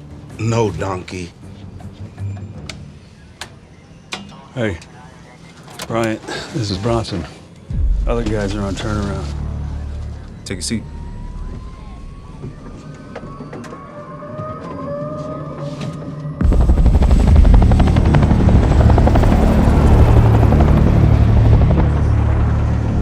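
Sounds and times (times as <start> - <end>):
helicopter rotors chopping: 16.4 - 23.0.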